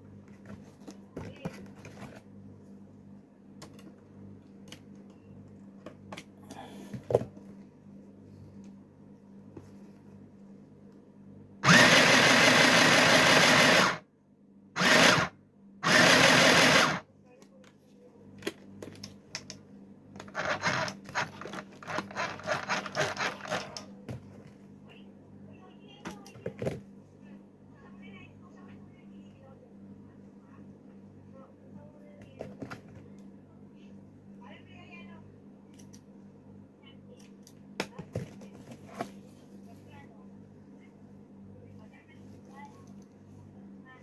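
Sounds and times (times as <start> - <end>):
clicks and rustles of handling: 20.2 - 24.9, 37.2 - 40.0
faint low hum: 23.0 - 44.0.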